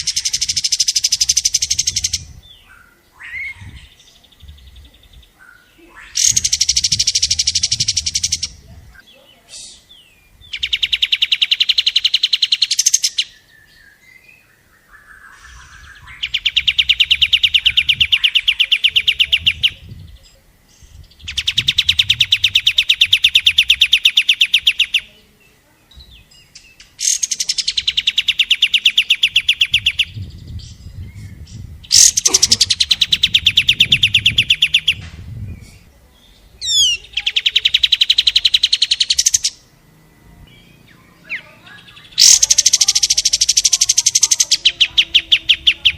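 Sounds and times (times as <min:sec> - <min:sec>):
bird song rapid repeated notes: 0:00.0 - 0:02.7, 0:03.5 - 0:20.2, 0:20.9 - 0:25.1, 0:26.0 - 0:35.1, 0:36.5 - 0:39.7, 0:40.5 - 0:45.9.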